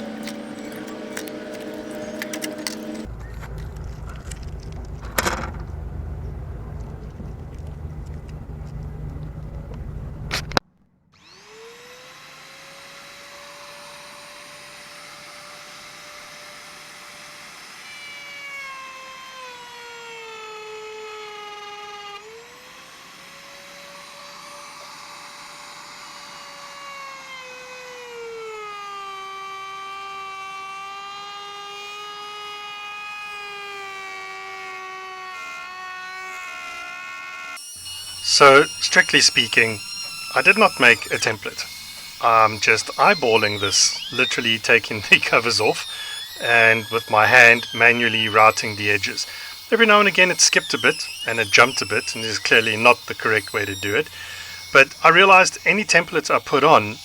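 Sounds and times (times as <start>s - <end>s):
electric router whining: 0.0s - 9.5s, 11.2s - 57.0s
loud low rumble: 3.2s - 10.3s.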